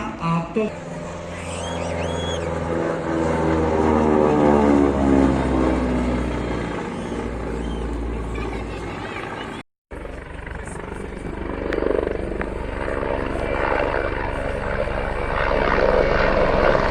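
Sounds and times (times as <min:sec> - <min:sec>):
propeller aircraft engine drone: 0:00.0 - 0:16.9.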